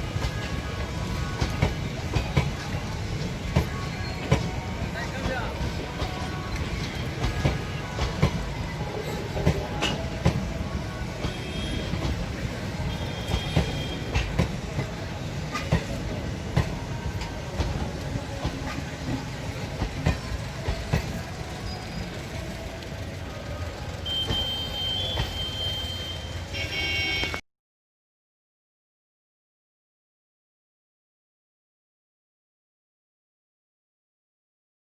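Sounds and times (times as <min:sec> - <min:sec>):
wheels clacking over rail joints: 0:00.0 - 0:26.0
train coaches rumbling on track: 0:00.0 - 0:27.4.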